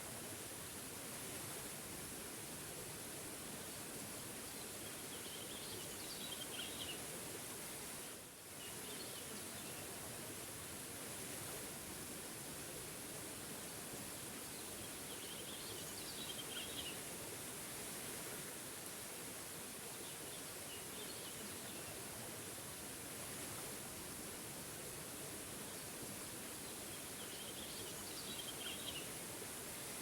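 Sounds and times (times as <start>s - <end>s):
small waterfall rushing: 0.0s - 30.0s.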